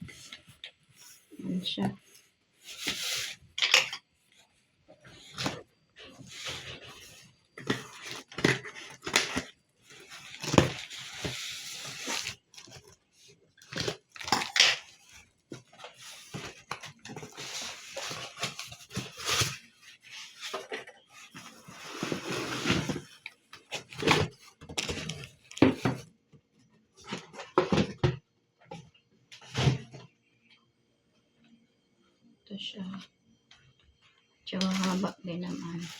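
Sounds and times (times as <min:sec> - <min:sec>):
packaging rustling and scraping: 0:00.0 - 0:26.0, 0:27.0 - 0:28.2, 0:34.6 - 0:35.9.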